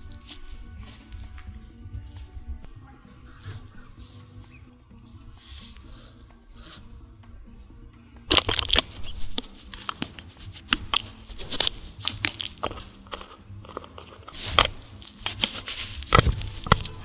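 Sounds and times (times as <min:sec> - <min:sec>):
cat rubbing against microphone: 0:08.8 - 0:17.0.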